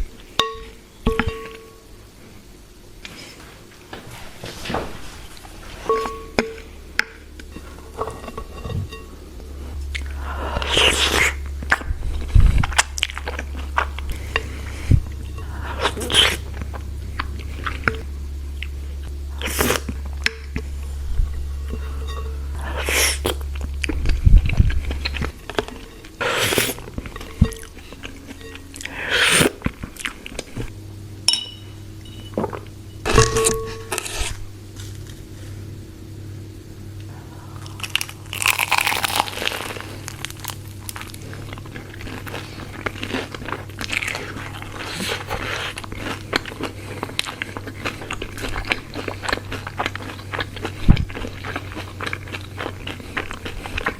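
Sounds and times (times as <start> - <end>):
low steady hum: 0.0 - 53.9
crunchy bites and chewing: 9.4 - 30.7, 37.4 - 53.9.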